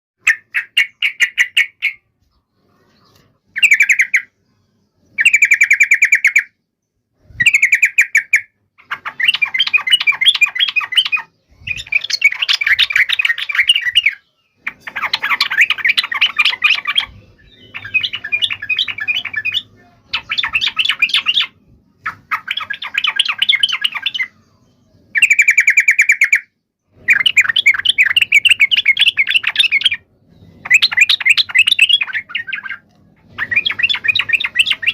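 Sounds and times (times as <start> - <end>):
bulbul chattering calls: 30.6 - 34.9.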